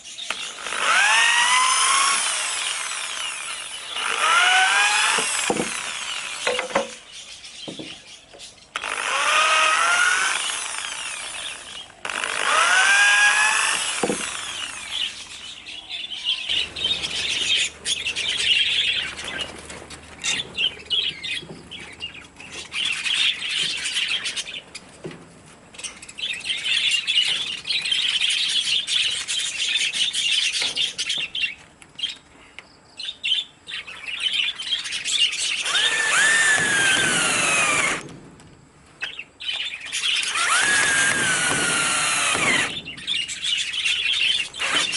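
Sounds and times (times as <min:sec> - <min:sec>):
rough cutting noise: 0:00.0 - 0:08.1, 0:08.7 - 0:15.7, 0:35.4 - 0:38.1, 0:39.9 - 0:44.9
power tool motor whine: 0:00.3 - 0:07.0, 0:08.8 - 0:15.4, 0:35.6 - 0:38.1, 0:40.2 - 0:42.9, 0:44.6 - 0:44.9.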